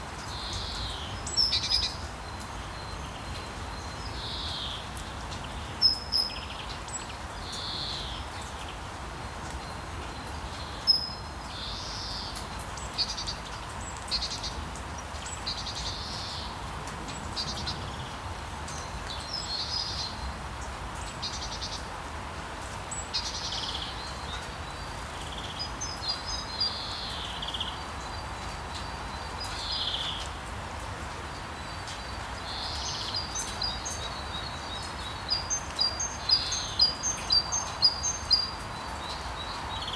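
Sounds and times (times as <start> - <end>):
steady rain hiss: 0.0 - 39.9
birds chirping: 31.3 - 39.9.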